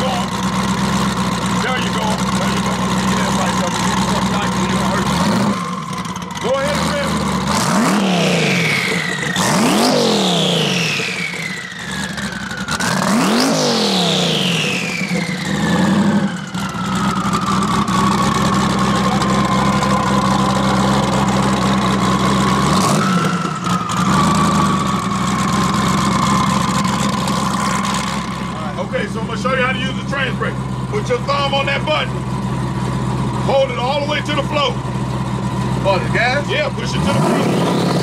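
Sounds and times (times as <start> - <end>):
car engine revving: 0.0 - 38.0
turbo whistle: 16.7 - 27.0.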